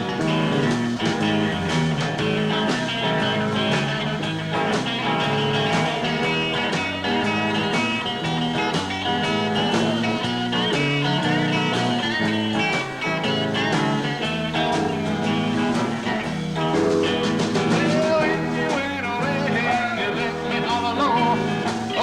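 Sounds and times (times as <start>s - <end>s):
bending guitar notes: 0.0s - 22.0s
live rock band playing: 0.0s - 22.0s.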